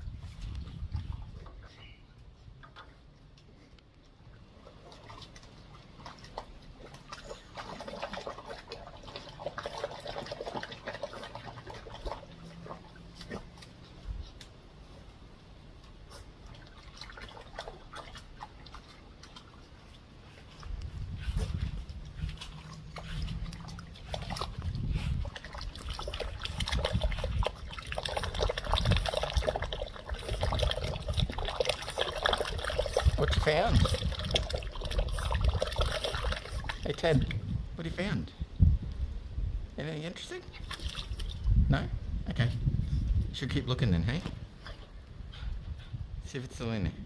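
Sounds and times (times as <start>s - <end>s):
trickling water: 0.0s - 14.2s, 15.8s - 37.6s, 40.6s - 41.6s
dog splashing in muddy puddle: 4.5s - 14.0s, 16.0s - 37.6s, 40.5s - 41.6s.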